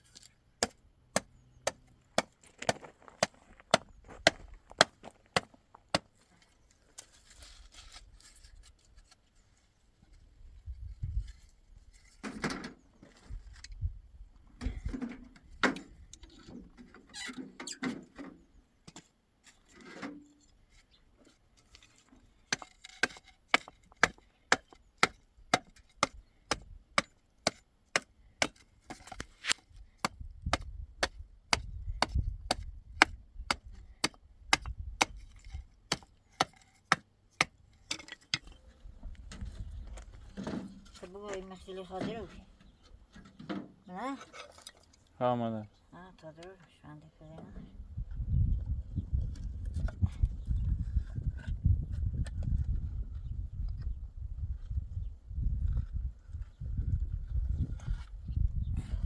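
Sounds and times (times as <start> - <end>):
squeaky scraping: 16.2 - 18.2.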